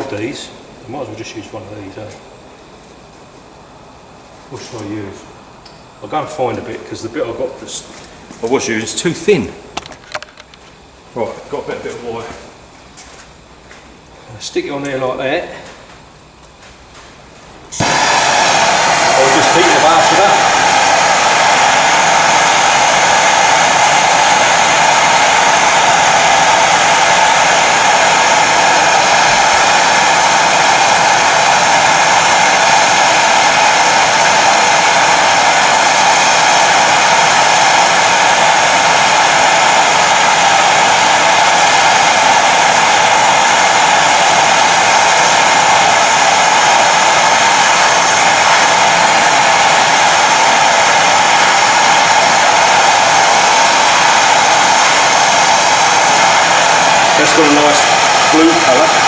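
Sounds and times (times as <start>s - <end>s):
gas torch flame hissing: 17.6s - 59.0s.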